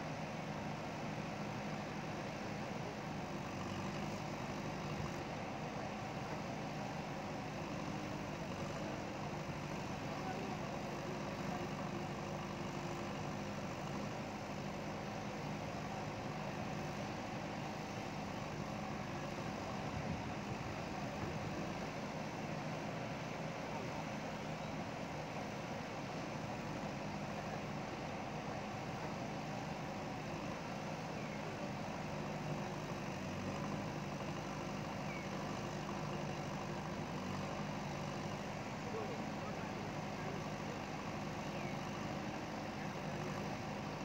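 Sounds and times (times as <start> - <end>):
backhoe diesel engine running: 0.0 - 44.0.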